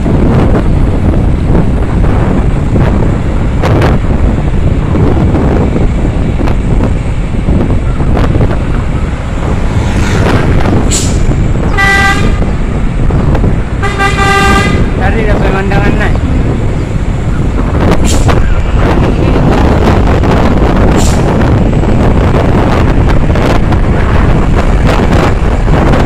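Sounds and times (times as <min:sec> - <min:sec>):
road vehicles rumbling: 0:00.0 - 0:26.0
wind on microphone: 0:00.0 - 0:26.0
vehicle horn blast: 0:11.6 - 0:12.5, 0:13.8 - 0:15.0.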